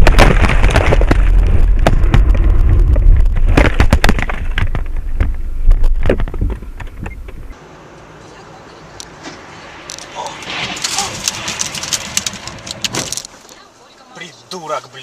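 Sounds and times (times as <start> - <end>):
car crash impact: 0.0 - 7.0, 10.0 - 13.4
crunching scraping knocks: 0.0 - 7.6, 9.2 - 13.5
low road rumble: 0.0 - 15.0.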